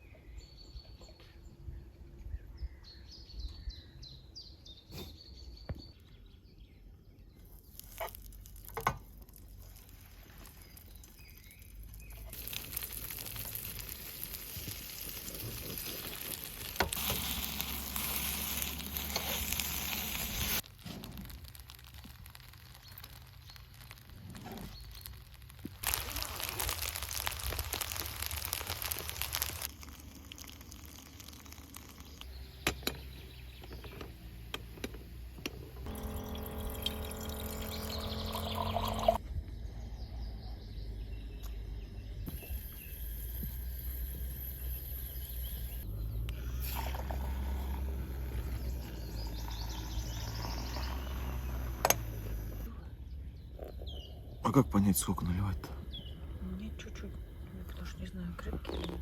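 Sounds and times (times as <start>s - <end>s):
birds chirping: 25.9s - 59.0s.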